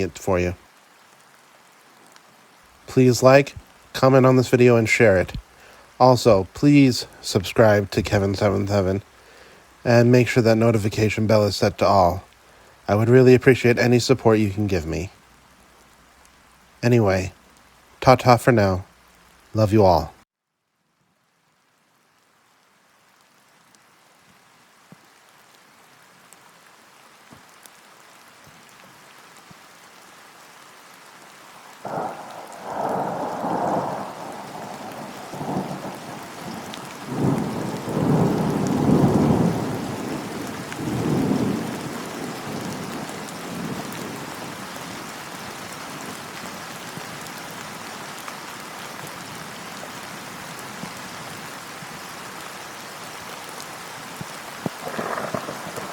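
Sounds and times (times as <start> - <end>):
rain: 0.0 - 55.9
thunder: 31.8 - 44.3, 54.7 - 55.9.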